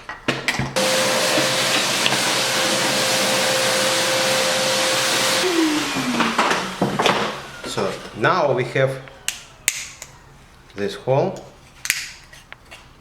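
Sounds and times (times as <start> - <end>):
electric motor running: 0.8 - 10.5.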